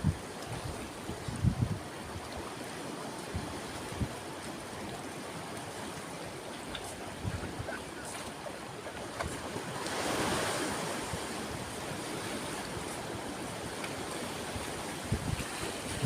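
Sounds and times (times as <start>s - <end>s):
wind rumble on microphone: 0.0s - 2.4s, 6.8s - 8.1s, 10.3s - 16.0s
sea waves washing onto shore: 0.0s - 16.0s.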